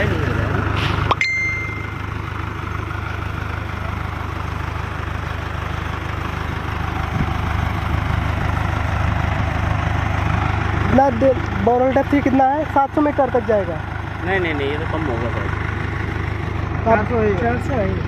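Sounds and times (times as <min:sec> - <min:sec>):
diesel engine low drone: 0:00.0 - 0:18.0
brief high-pitched tone: 0:00.8 - 0:02.2.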